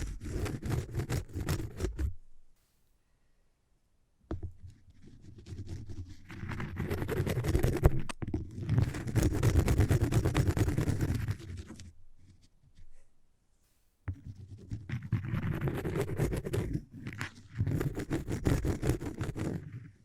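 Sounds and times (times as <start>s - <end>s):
rapid scratching on cork: 0.0s - 2.8s, 4.4s - 13.1s, 14.1s - 20.0s.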